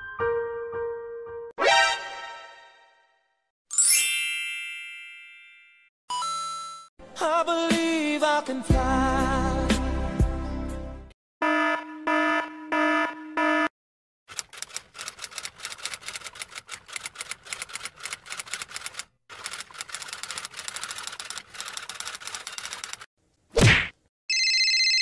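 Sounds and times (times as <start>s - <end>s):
alarm beeps: 11.4s - 13.7s
typewriter keystrokes: 14.3s - 23.1s.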